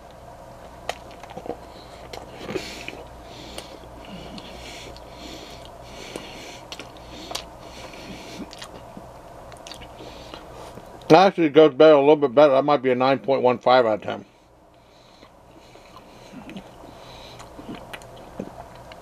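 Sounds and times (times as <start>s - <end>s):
man chewing: 0.6s - 11.1s, 14.8s - 19.0s
nasal breathing: 1.6s - 9.0s, 9.8s - 11.0s, 14.2s - 18.4s.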